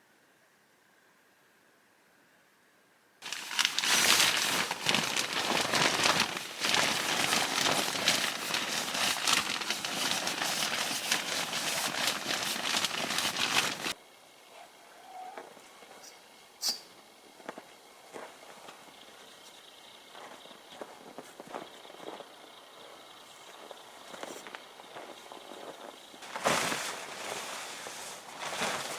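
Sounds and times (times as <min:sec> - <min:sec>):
material crinkling and rustling: 0:03.2 - 0:14.0.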